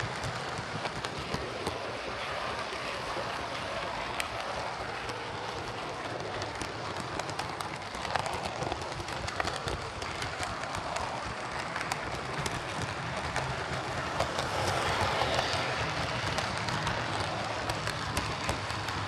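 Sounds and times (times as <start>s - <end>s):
model train wheels rattling: 6.0s - 19.0s.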